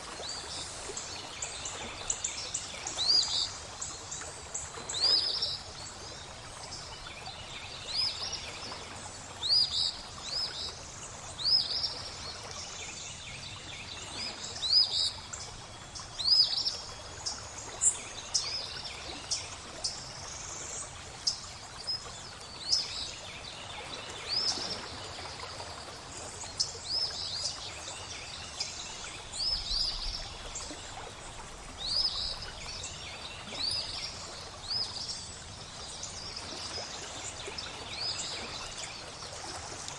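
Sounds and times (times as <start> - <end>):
flowing water trickle: 0.0 - 39.9
songbirds chirping: 0.0 - 39.9.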